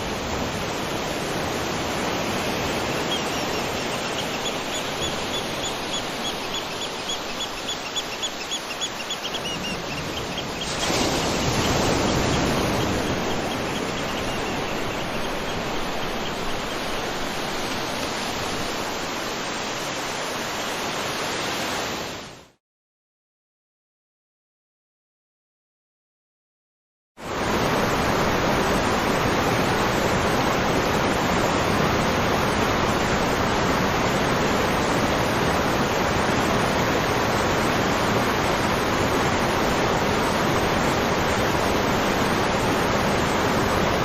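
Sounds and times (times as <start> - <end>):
waterfall rushing: 0.0 - 22.1.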